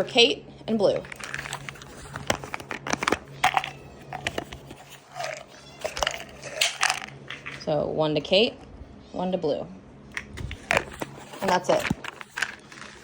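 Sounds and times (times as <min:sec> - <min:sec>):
steady low hum: 0:00.0 - 0:13.0
pills clicking and crackling: 0:01.0 - 0:07.6, 0:10.2 - 0:13.0
pills dropping into buckets: 0:01.0 - 0:07.6, 0:10.2 - 0:13.0.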